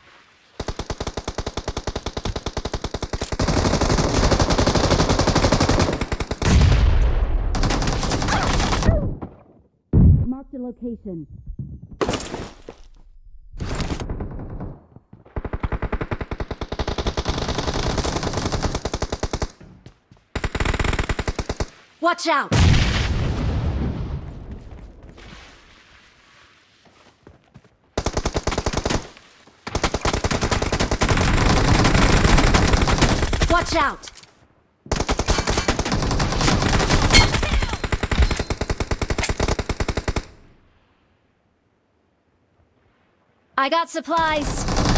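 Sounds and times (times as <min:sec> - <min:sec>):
video game automatic gunfire: 0:29.7 - 0:33.7, 0:44.3 - 0:44.9.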